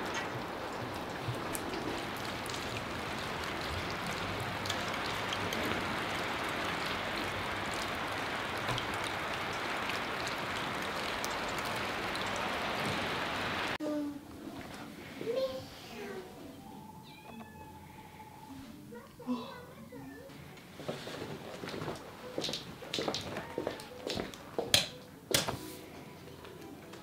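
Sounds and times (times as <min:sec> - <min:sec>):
raindrops ticking: 0:00.0 - 0:13.8, 0:21.6 - 0:24.9
steady rain hiss: 0:00.0 - 0:13.8.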